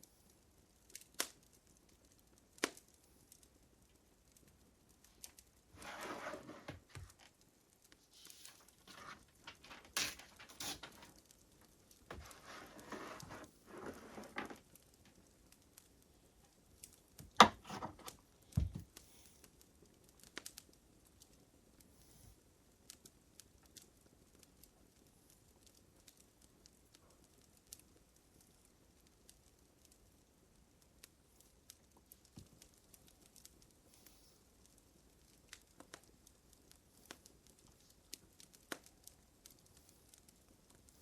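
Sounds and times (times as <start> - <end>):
papers rustling: 5.8 - 7.3, 8.1 - 11.2, 12.1 - 14.7, 17.3 - 18.8.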